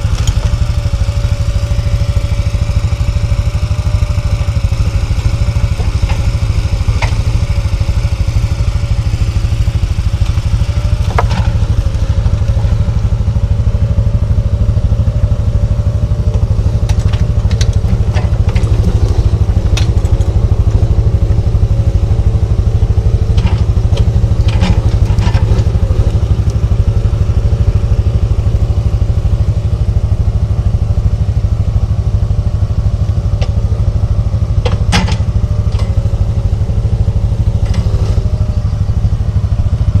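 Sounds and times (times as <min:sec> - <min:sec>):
atv engine running: 0:00.0 - 0:40.0
knocks and clatter: 0:11.0 - 0:11.8, 0:34.6 - 0:36.0.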